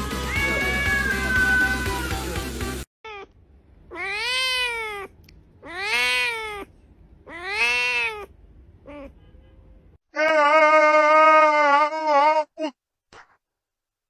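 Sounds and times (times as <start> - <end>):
cat meowing: 0.3 - 2.0, 3.1 - 9.2.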